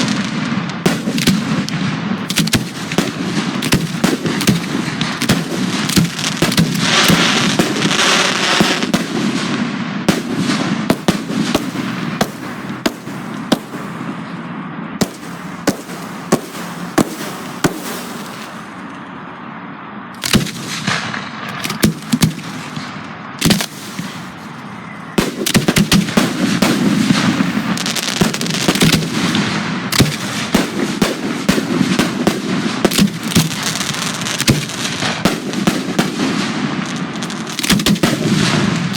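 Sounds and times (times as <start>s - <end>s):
crackling firework trails: 0.0s - 38.9s
firework shell bursts: 15.0s - 18.8s, 20.2s - 36.4s.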